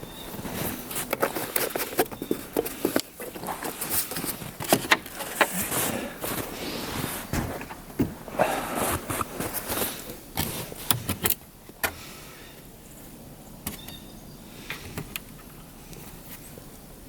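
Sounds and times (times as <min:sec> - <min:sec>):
rustling handling noise: 0:00.0 - 0:11.4.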